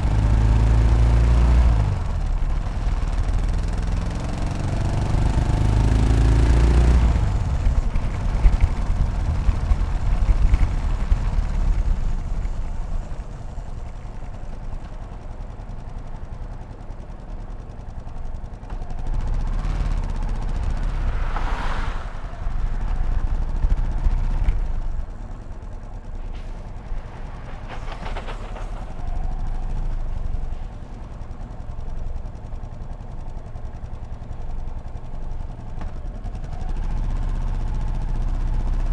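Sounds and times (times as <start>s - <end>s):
motorcycle engine revving: 0.0s - 14.8s, 18.2s - 25.5s
rushing noise: 20.1s - 24.8s.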